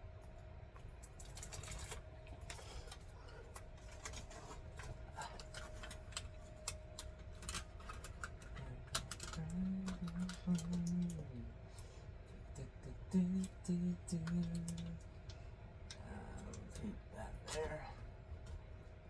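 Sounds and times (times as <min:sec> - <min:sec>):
faint steady hum: 0:00.0 - 0:19.0
tape clicking and crackling: 0:00.8 - 0:12.4, 0:13.2 - 0:16.9.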